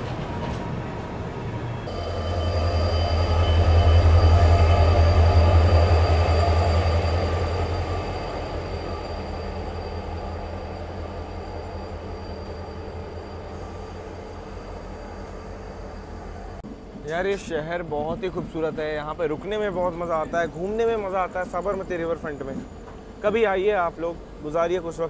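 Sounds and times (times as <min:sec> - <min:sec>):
train rumbling on rails: 0:00.0 - 0:25.0.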